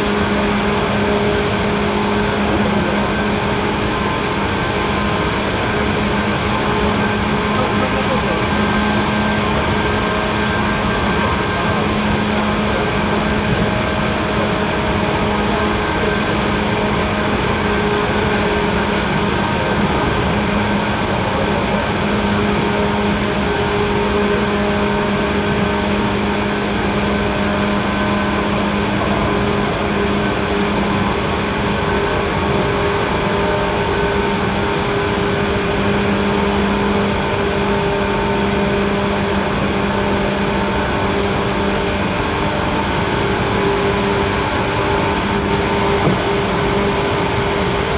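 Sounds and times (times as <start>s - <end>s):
electric train running: 0.0s - 47.9s
steady hum of held tones: 0.0s - 47.9s.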